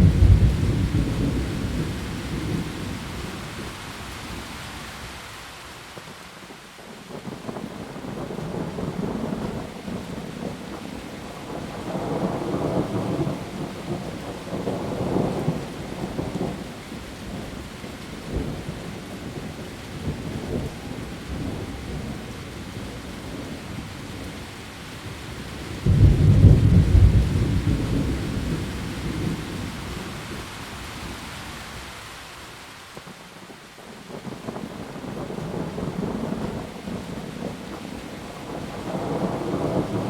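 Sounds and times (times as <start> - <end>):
thunder rumbling: 0.0 - 3.3, 25.8 - 30.1, 34.2 - 40.0
heavy rain on leaves: 0.0 - 40.0
loud thunder clap: 25.9 - 28.3.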